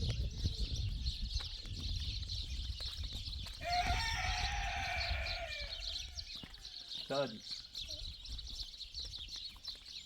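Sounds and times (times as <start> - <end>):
rooster crowing: 3.6 - 6.0.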